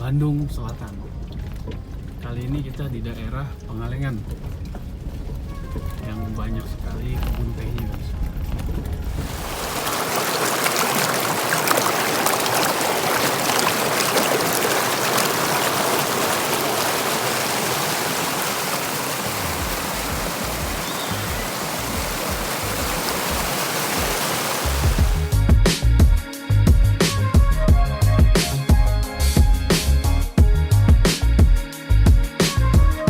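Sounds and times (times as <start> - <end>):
river water rushing: 9.1 - 25.3.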